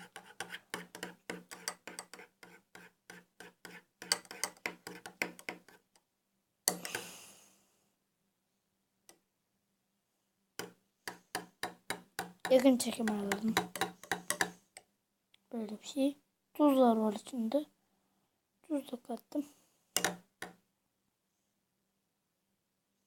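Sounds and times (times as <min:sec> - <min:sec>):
spoon clicking against container: 0:04.0 - 0:05.6.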